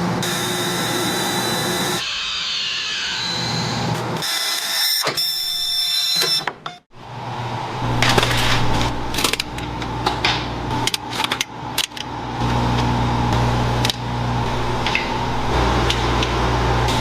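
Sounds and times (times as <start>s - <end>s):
steady low hum: 6.9s - 17.0s.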